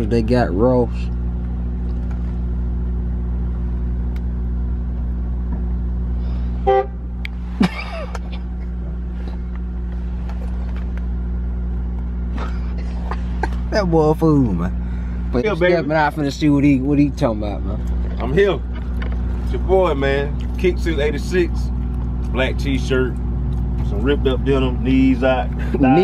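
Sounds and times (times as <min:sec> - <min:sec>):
car engine idling: 0:00.0 - 0:26.0
car horn toot: 0:06.6 - 0:07.2.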